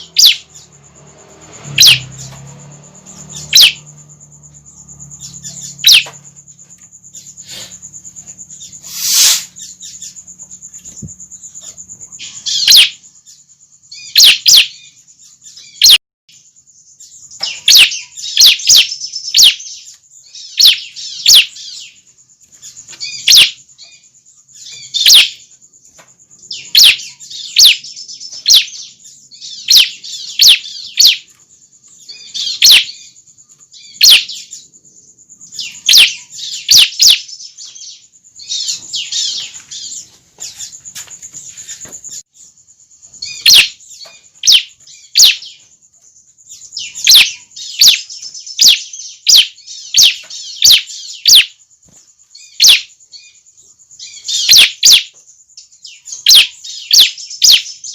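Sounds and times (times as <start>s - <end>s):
thin high buzz: 0.0s - 13.0s
birds chirping: 0.0s - 57.9s.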